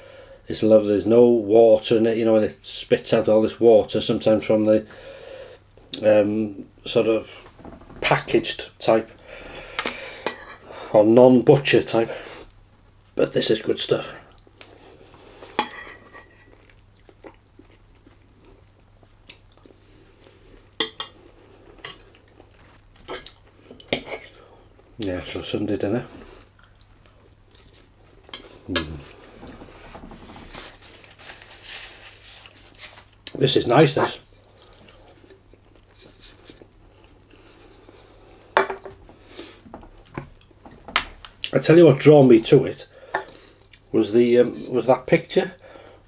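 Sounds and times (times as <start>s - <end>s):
quiet chewing: 14.3s - 25.0s, 26.1s - 30.9s, 34.2s - 41.6s, 43.1s - 43.9s
cutlery clinking on a plate: 15.6s - 16.3s.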